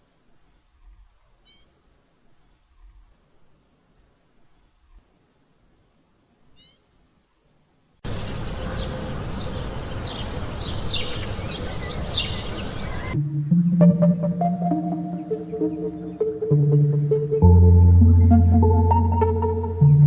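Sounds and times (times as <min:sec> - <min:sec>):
steady outdoor noise: 0:00.0 - 0:20.0
small bird chirping: 0:00.5 - 0:01.8, 0:06.5 - 0:06.9.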